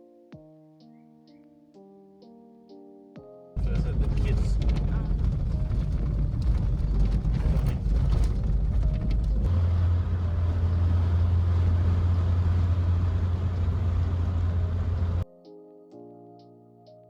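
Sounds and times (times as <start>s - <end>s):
car cabin road rumble: 3.6s - 15.2s.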